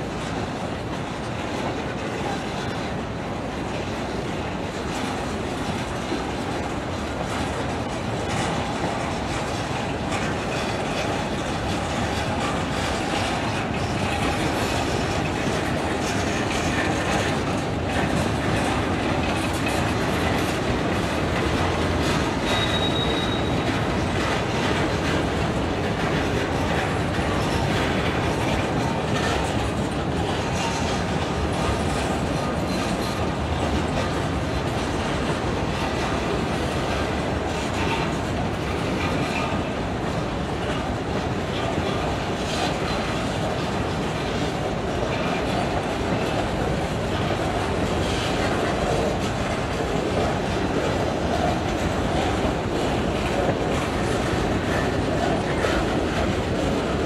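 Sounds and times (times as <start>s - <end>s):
steel wheels rolling on rail: 0.0s - 57.0s
high-pitched wheel squeal: 22.5s - 23.5s.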